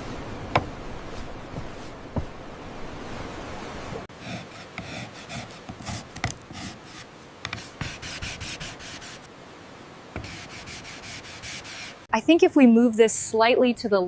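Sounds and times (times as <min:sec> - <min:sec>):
sanding wood by hand: 0:04.2 - 0:09.3, 0:10.2 - 0:12.1.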